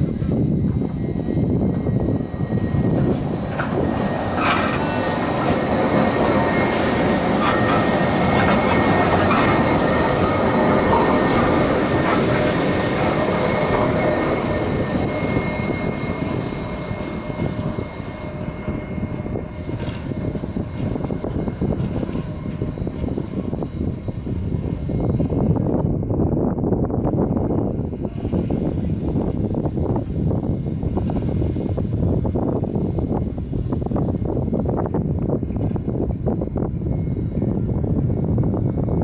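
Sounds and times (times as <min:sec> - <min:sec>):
train wheels rumbling over track: 0:00.0 - 0:39.0
loud high hissing: 0:01.1 - 0:23.6, 0:28.0 - 0:34.8.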